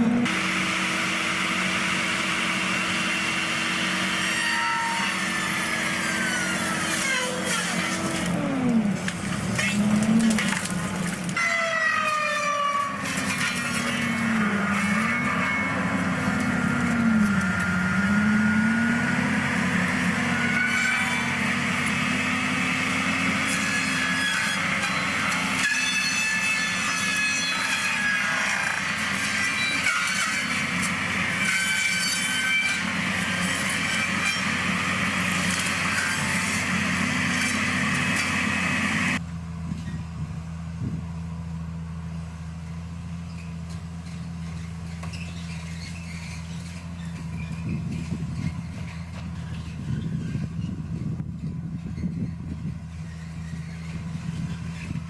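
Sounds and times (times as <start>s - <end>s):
low engine hum: 0.0s - 11.4s, 13.2s - 23.5s, 34.6s - 55.0s
heavy machinery engine whining: 0.0s - 55.0s.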